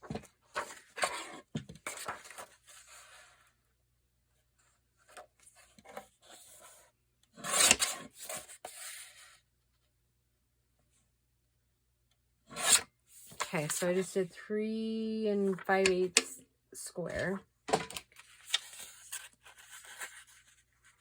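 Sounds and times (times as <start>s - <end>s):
paper rubbing and scraping: 18.3s - 21.0s.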